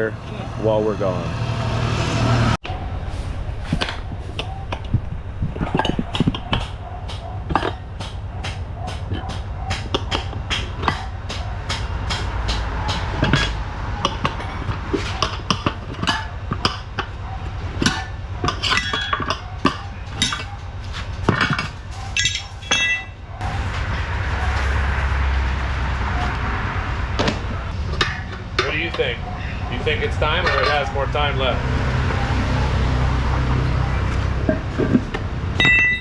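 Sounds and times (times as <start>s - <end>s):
steady noisy background: 0.0s - 36.0s
metal tools clinking on metal parts: 17.8s - 25.2s, 27.9s - 31.5s, 35.6s - 36.0s.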